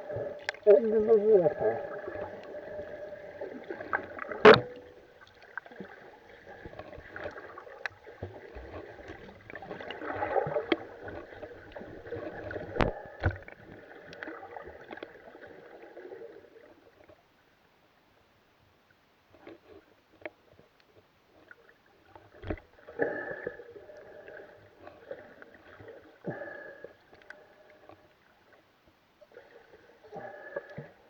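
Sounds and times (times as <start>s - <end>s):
water splashing from paddling: 0.0s - 14.7s.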